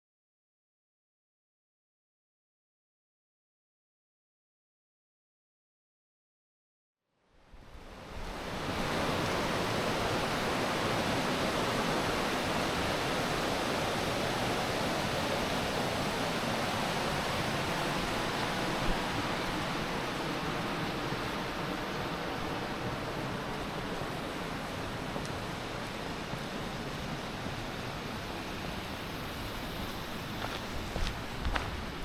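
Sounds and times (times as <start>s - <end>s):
flowing river water: 7.5s - 32.0s.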